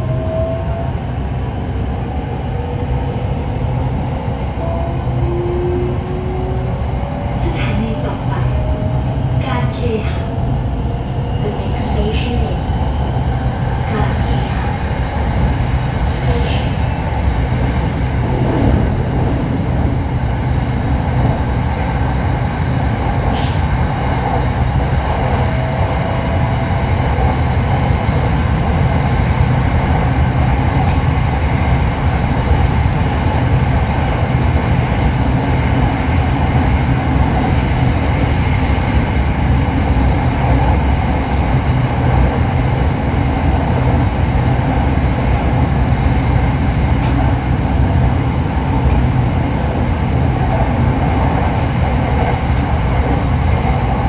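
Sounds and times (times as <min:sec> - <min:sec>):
train cabin rumble: 0:11.2 - 0:54.0.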